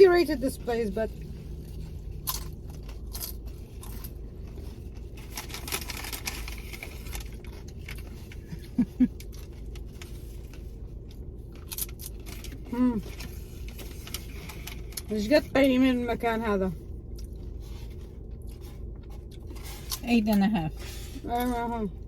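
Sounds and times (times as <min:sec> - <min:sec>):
low steady rumble: 0:00.0 - 0:22.0
crunching of nachos and taco shells: 0:00.1 - 0:22.0
food wrappers crackling: 0:00.3 - 0:15.1.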